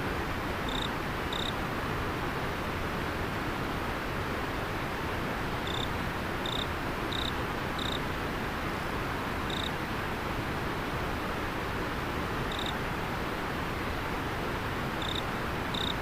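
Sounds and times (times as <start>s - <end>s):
cricket chirping: 0.7s - 1.6s, 5.7s - 8.0s, 9.5s - 9.7s, 12.5s - 12.8s, 15.0s - 16.0s.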